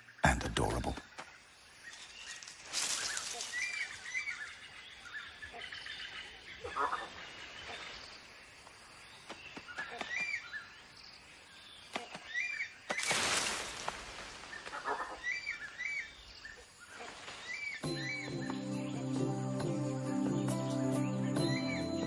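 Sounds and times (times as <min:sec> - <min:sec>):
bird chirped calls: 0:14.5 - 0:22.0.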